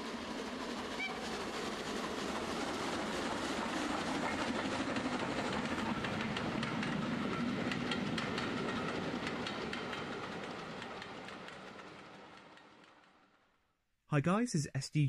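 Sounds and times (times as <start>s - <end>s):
train running on rails: 0.0s - 13.6s
wheels clicking over rail joints: 3.9s - 13.1s.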